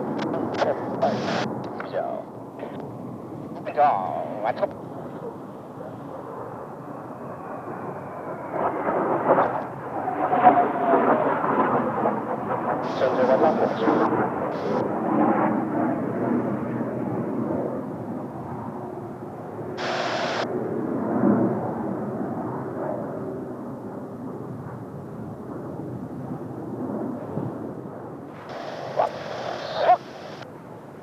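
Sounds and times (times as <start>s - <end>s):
jet aircraft rumble overhead: 0.0s - 31.0s
wind hiss on microphone: 0.5s - 1.8s, 19.8s - 20.5s, 28.3s - 30.4s.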